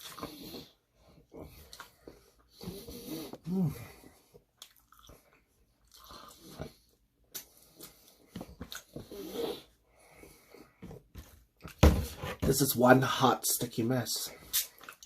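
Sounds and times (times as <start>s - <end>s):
person chewing food: 0.0s - 10.8s, 14.4s - 15.0s.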